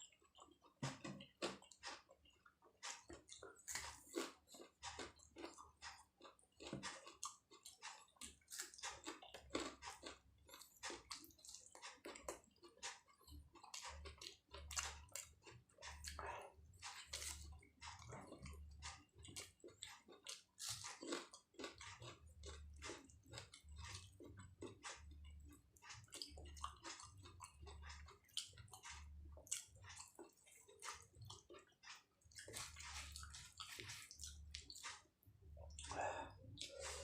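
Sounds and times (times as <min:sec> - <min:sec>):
person chewing: 0:00.0 - 0:37.0.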